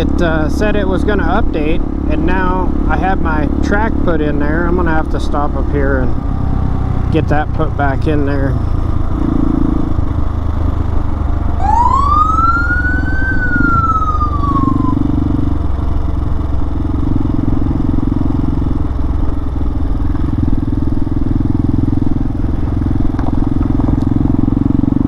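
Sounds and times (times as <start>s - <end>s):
motorcycle engine running: 0.0s - 25.0s
police siren wail: 11.5s - 15.2s.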